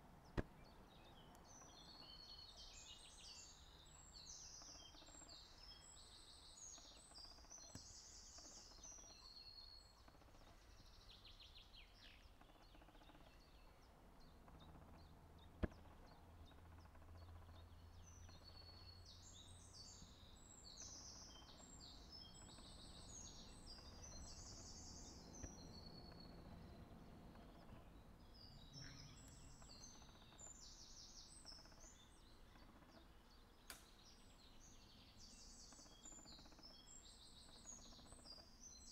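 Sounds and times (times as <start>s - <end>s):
faint songbird singing: 0.0s - 38.9s
sharp click: 33.7s - 34.0s.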